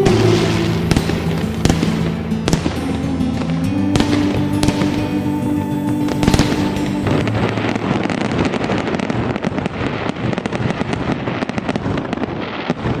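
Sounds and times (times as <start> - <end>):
dense crackling and popping: 6.2 - 13.0.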